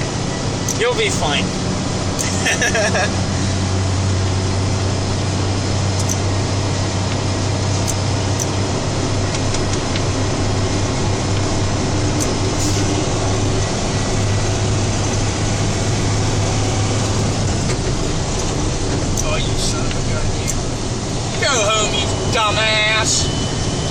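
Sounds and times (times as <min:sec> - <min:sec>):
road noise: 0:00.0 - 0:23.9
truck engine running: 0:00.0 - 0:23.9
faint high ticks: 0:06.0 - 0:06.2.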